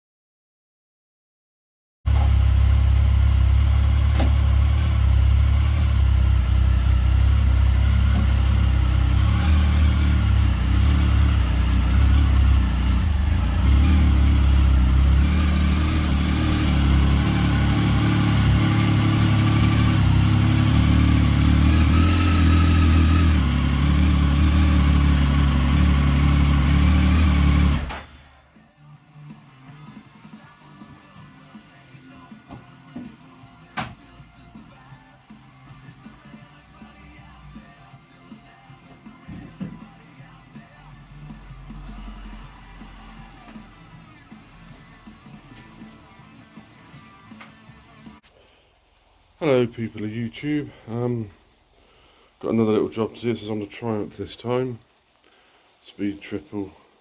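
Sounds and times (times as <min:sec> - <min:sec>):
motorcycle engine running: 0:02.1 - 0:28.4.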